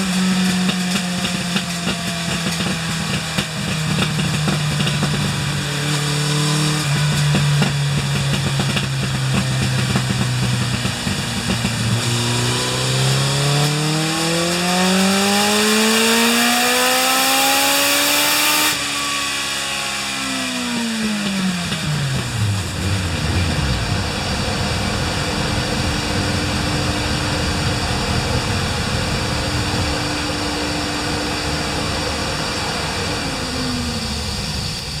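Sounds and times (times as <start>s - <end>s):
motorcycle engine revving on dynamometer: 0.0s - 35.0s
steady hum: 22.1s - 35.0s.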